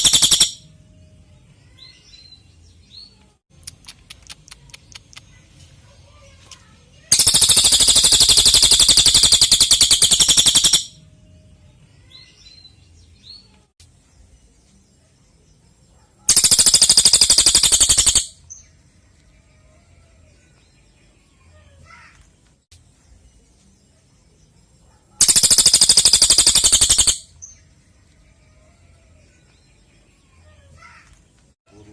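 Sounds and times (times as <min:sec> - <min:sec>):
songbird rapid trills: 0:00.0 - 0:00.6, 0:07.1 - 0:10.9, 0:16.3 - 0:18.3, 0:25.2 - 0:27.3
faint bird chirps: 0:00.0 - 0:22.2, 0:22.8 - 0:31.9.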